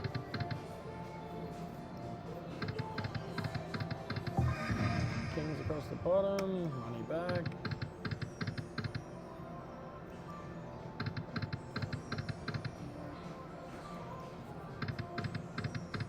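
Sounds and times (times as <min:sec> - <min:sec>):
rapid electronic clicks: 0:02.6 - 0:04.8, 0:07.3 - 0:09.0, 0:11.0 - 0:12.8, 0:14.8 - 0:16.0.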